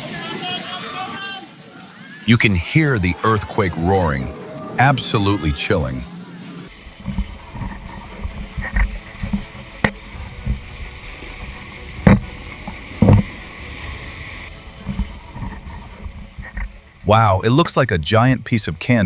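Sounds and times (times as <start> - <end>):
earthquake rumble: 6.7 - 17.5
sharp knocks and bangs: 12.0 - 12.3.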